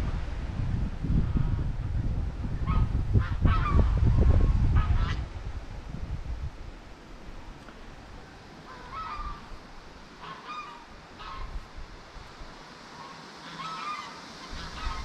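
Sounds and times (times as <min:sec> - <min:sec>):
geese honking: 0:02.6 - 0:04.0, 0:08.6 - 0:09.6, 0:10.2 - 0:11.6, 0:12.8 - 0:15.0.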